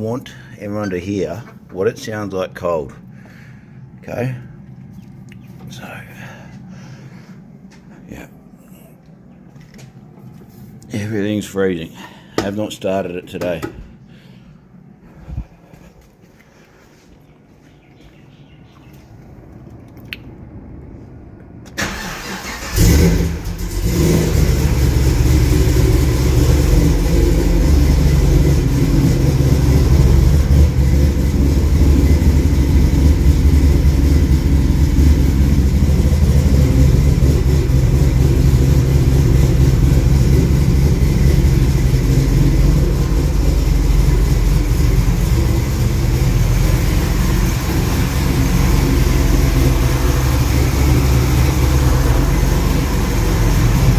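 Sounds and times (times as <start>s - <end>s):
engine cranking: 21.7s - 53.9s
engine rev flare and idle: 21.8s - 53.9s.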